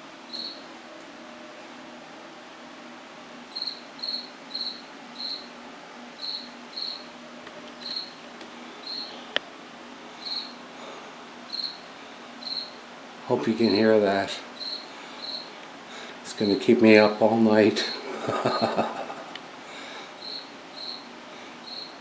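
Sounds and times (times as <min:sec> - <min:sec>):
cricket chirping: 0:00.3 - 0:00.6, 0:03.5 - 0:05.5, 0:06.2 - 0:07.1, 0:07.8 - 0:08.2, 0:08.8 - 0:09.2, 0:10.2 - 0:10.6, 0:11.5 - 0:11.8, 0:12.4 - 0:12.8, 0:14.6 - 0:15.5, 0:20.2 - 0:22.0.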